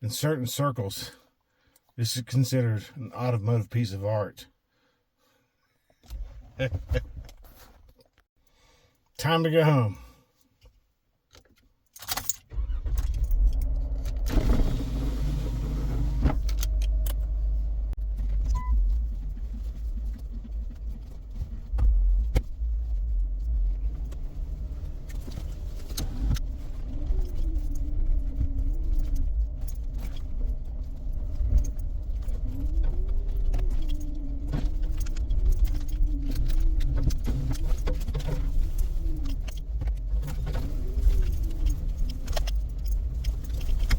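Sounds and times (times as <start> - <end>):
rattles and clicks in cab: 10.6 - 43.9
engine and tyres rumbling: 12.5 - 43.9.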